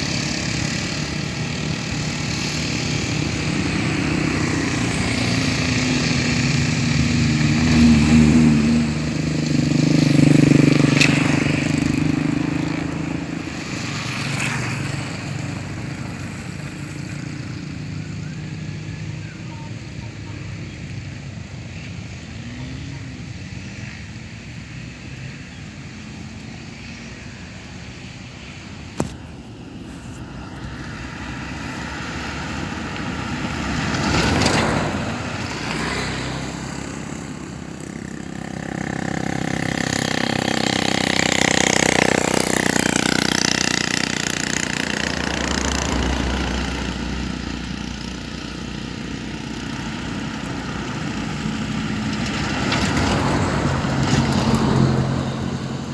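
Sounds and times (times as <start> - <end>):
motor vehicles passing: 0.0 - 55.9.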